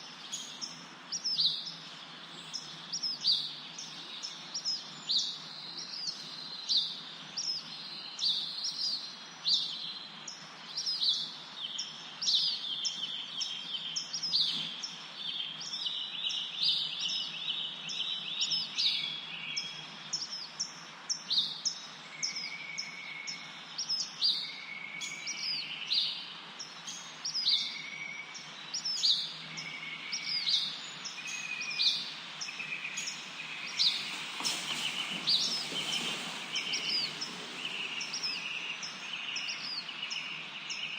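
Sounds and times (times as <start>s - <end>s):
birds chirping and singing: 0.0s - 40.9s
steady background hiss: 0.0s - 40.9s.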